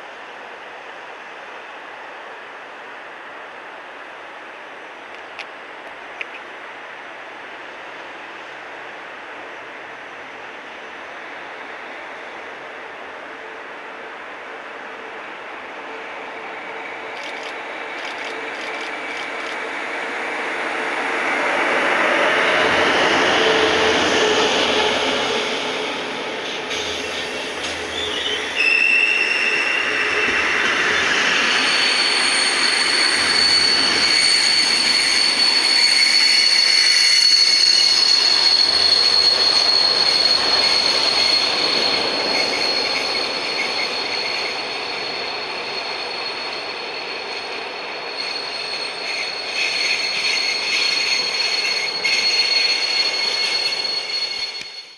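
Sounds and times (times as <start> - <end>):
train wheels squealing: 15.8 - 54.9
train wheels rumbling and rattling: 16.5 - 54.9.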